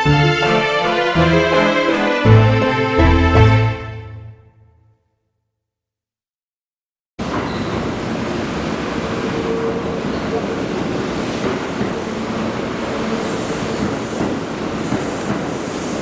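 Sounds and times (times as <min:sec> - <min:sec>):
train running: 0:07.2 - 0:16.0.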